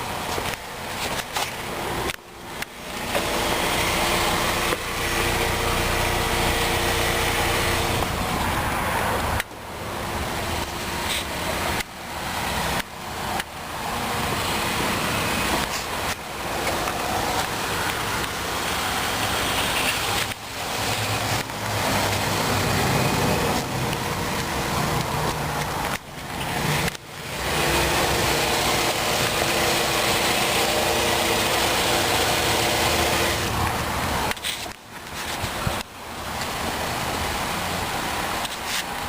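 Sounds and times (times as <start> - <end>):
car idling: 0.0 - 39.0.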